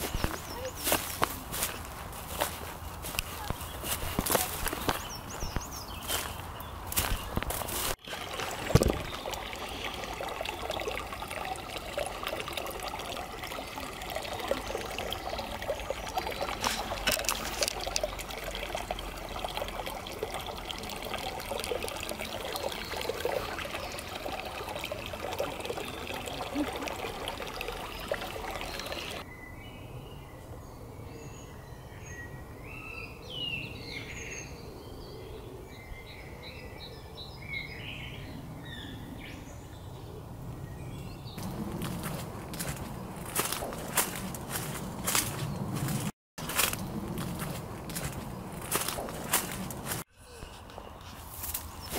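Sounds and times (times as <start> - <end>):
water dripping into puddle: 7.0 - 29.2, 41.4 - 45.4, 46.5 - 50.1.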